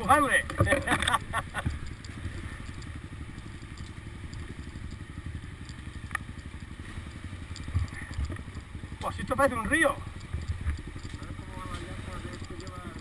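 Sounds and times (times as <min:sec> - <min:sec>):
vehicle engine idling: 0:00.0 - 0:13.0
light clicks: 0:00.5 - 0:05.0, 0:05.6 - 0:06.4, 0:07.5 - 0:09.1, 0:10.1 - 0:13.0.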